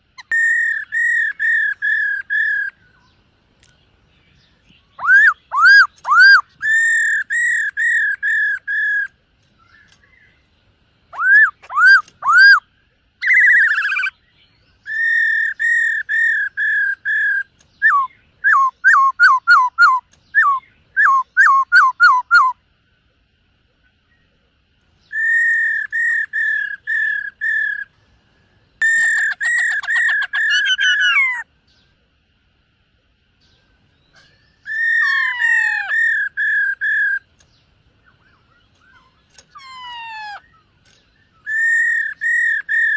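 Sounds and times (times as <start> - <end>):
bird whistling phrases: 0.2 - 3.1, 4.9 - 9.1, 11.1 - 14.2, 14.8 - 22.6, 25.0 - 27.9, 28.8 - 31.5, 34.1 - 37.3, 38.2 - 40.7, 41.3 - 42.9.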